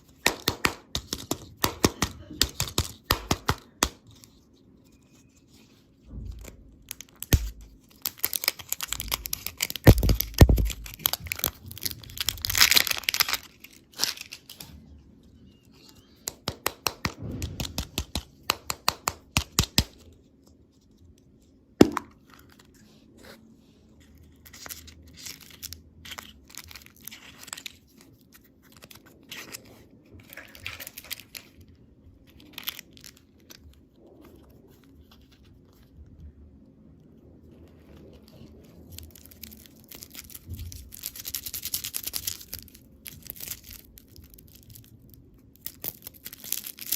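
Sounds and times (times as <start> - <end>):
plastic packaging crinkling: 6.4 - 18.2, 24.0 - 36.0, 37.8 - 46.9.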